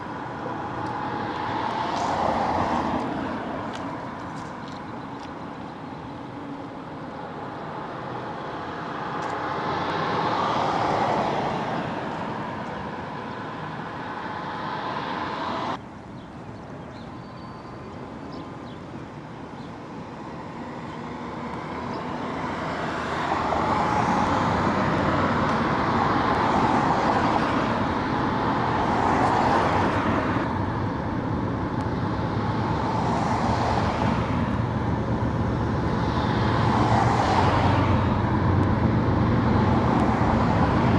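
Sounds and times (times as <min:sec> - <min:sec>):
low engine drone: 0:30.4 - 0:40.9.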